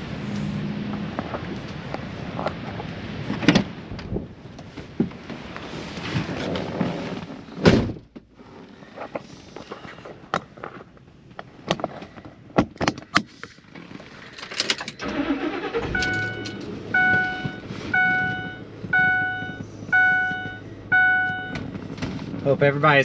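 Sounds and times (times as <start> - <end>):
car engine starting and idling: 0.0 - 4.5, 13.5 - 23.0
car warning chime: 15.4 - 21.6.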